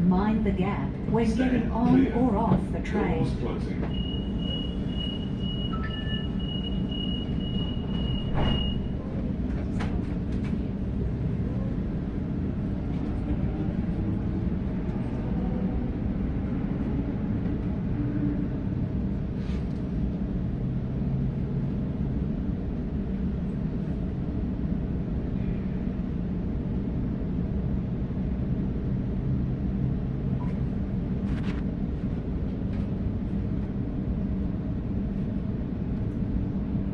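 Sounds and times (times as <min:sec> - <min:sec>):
train rumbling: 0:00.0 - 0:36.9
door-closing warning beeps: 0:03.8 - 0:09.0
train doors knocking shut: 0:08.0 - 0:08.8.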